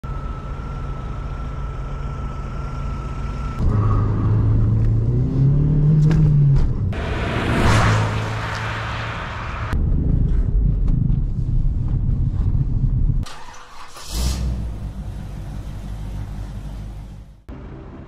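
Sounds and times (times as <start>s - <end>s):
car engine revving: 3.6s - 9.8s
wind and road noise: 3.6s - 18.0s.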